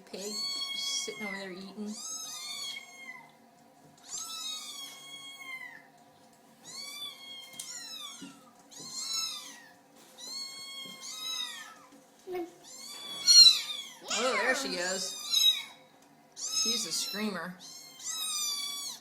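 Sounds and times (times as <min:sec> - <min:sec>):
kittens mewing: 0:06.6 - 0:15.8, 0:16.4 - 0:19.0.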